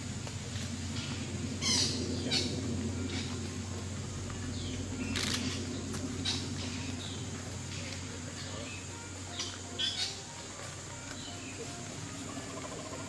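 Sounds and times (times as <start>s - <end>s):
steady low hum: 0.0s - 13.0s
high-pitched bird calls: 1.0s - 3.6s, 8.7s - 13.0s.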